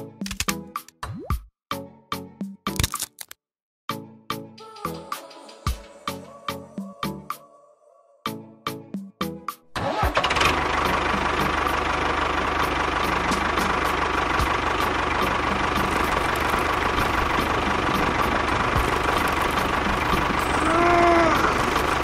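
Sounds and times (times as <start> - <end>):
tractor engine idling: 9.8 - 22.0.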